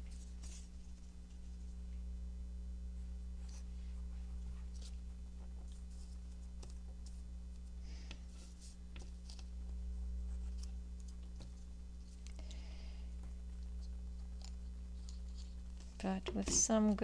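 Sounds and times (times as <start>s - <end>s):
steady low hum: 0.0s - 17.0s
paper rustling: 3.4s - 9.5s, 10.3s - 12.6s, 13.3s - 17.0s.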